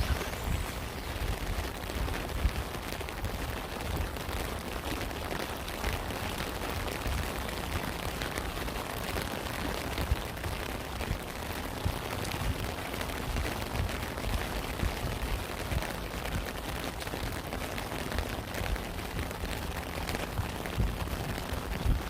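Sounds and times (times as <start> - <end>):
low rumble: 0.0 - 3.4
raindrops tapping: 0.0 - 22.0
steady rain: 0.0 - 22.0.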